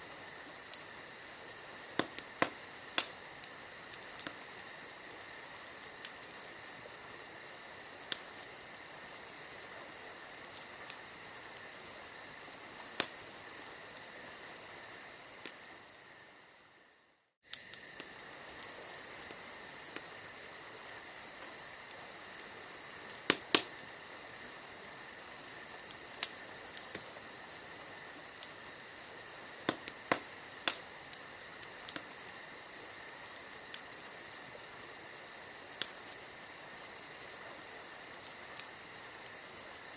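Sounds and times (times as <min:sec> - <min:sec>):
campfire crackling: 0:00.0 - 0:39.9
crickets chirring: 0:00.0 - 0:39.9
fire popping sharply: 0:00.3 - 0:06.8, 0:12.5 - 0:16.2, 0:17.4 - 0:34.5.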